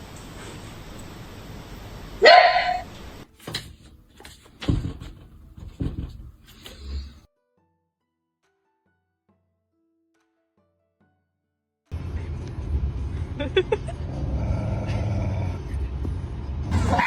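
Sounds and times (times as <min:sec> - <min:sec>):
dog barking: 0:02.2 - 0:02.9, 0:16.7 - 0:17.0.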